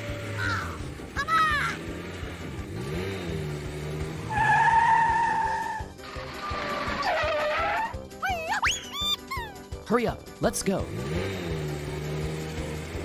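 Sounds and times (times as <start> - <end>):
cartoon vehicle sound effects: 0.0 - 2.0, 4.1 - 9.8
background music: 0.0 - 13.0
high squealing tone: 4.3 - 8.0.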